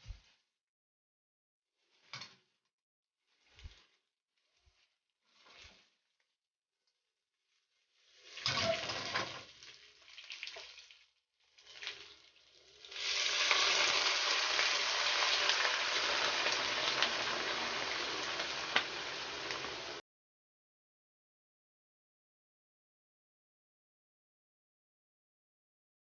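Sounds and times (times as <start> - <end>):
food sizzling in hot oil: 7.8 - 20.0
oil crackling: 9.5 - 20.0.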